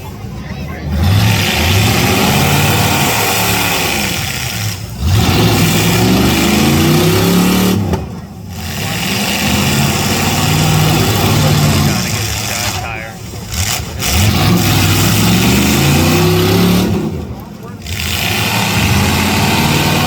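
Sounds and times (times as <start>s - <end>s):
car engines revving hard: 0.0s - 20.0s.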